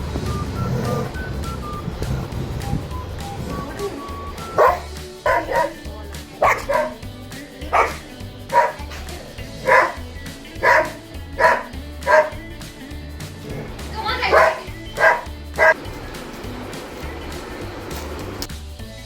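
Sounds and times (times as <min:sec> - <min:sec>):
background music with low beat: 0:00.0 - 0:19.0
dog barking: 0:03.8 - 0:07.0, 0:07.7 - 0:12.5, 0:13.5 - 0:15.8.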